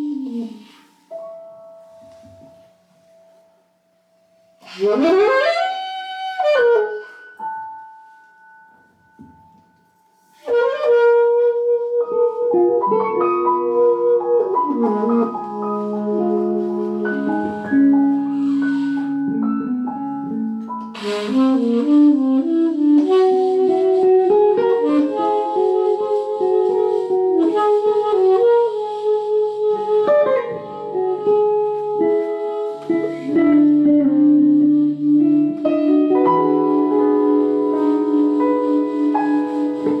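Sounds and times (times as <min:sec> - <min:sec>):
wind instrument long notes: 0:00.0 - 0:02.6, 0:04.6 - 0:07.9, 0:10.4 - 0:40.0.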